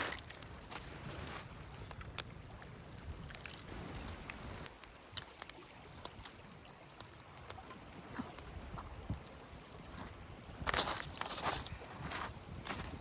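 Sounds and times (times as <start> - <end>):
campfire twigs snapping: 0.0 - 7.6.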